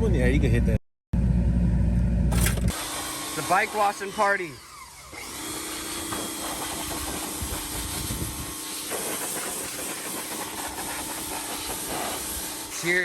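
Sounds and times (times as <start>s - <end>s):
pressure washer spraying: 2.7s - 13.0s.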